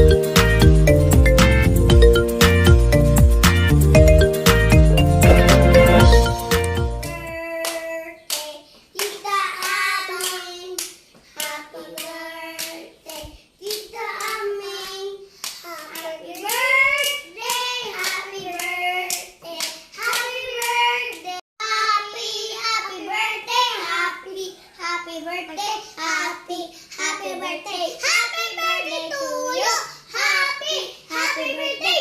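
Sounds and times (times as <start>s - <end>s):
background music: 0.0s - 7.4s
hands clapping: 5.2s - 14.4s.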